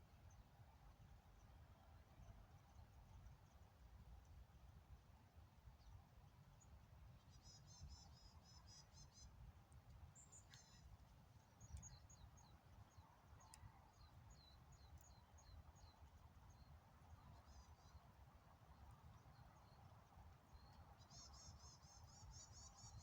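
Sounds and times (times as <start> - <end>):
faint small-bird calls: 6.6 - 9.4, 10.1 - 23.0.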